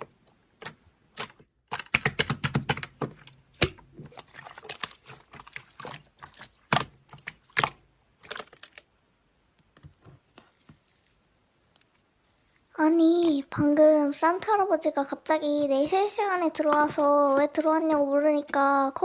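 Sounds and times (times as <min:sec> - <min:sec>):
slime squished by hand: 0:00.6 - 0:08.9.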